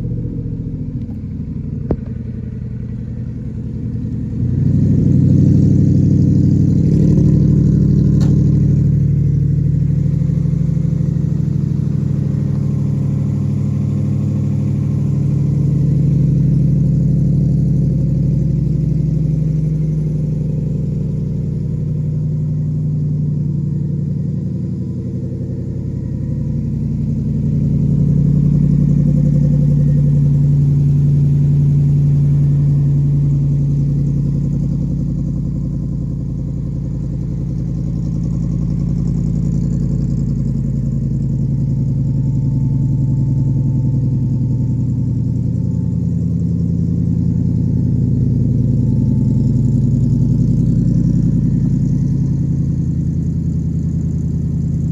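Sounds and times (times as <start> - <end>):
car engine idling: 0.0 - 54.9.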